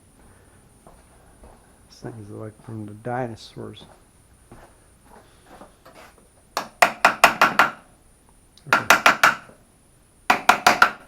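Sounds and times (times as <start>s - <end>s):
hammer tapping metal brackets: 6.6s - 7.8s, 8.7s - 9.6s, 10.3s - 11.0s.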